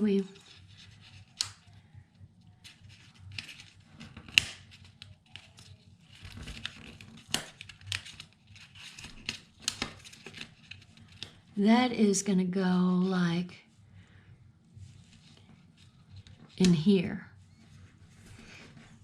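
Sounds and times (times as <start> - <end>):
paper rustling: 0.2 - 1.7, 2.6 - 11.4.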